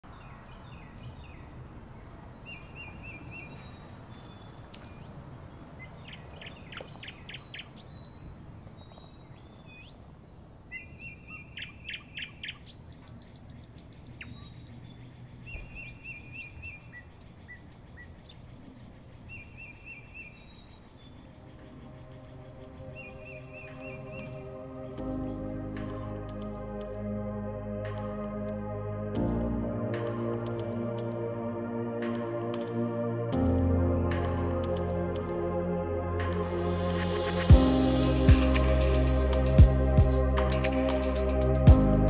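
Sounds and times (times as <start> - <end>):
wild birds singing and calling: 0.0 - 26.2
low background noise: 0.0 - 33.2.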